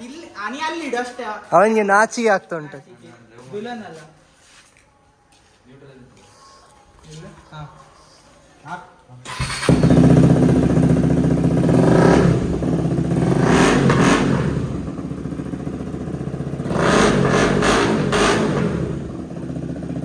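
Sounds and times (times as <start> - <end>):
motorcycle engine revving: 9.3 - 20.0.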